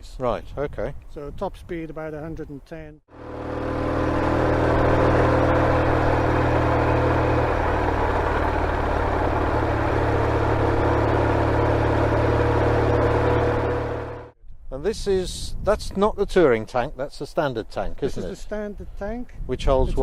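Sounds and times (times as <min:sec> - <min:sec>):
motorcycle engine running steadily: 0:03.1 - 0:14.4.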